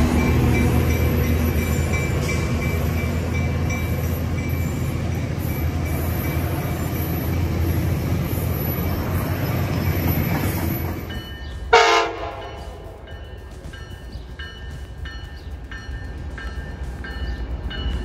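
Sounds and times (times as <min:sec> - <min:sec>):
train cars rumbling past: 0:00.0 - 0:18.0
train horn blast: 0:11.7 - 0:13.1.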